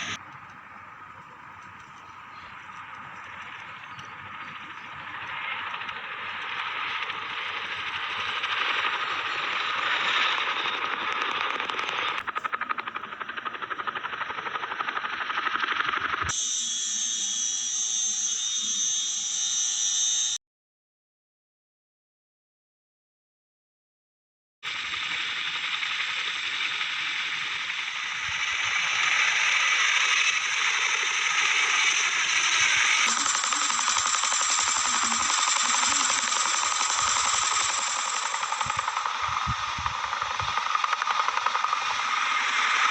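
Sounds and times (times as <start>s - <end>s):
fast rotor blade chop: 0.0s - 0.2s, 24.7s - 42.9s
helicopter turbine and rotor noise: 0.0s - 20.4s, 24.7s - 42.9s.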